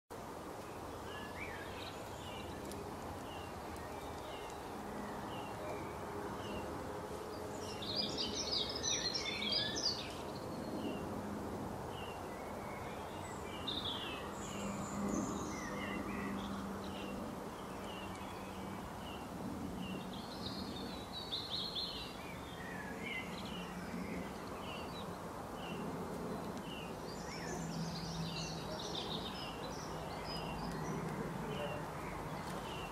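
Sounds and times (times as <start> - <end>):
steady background noise: 0.1 - 32.9.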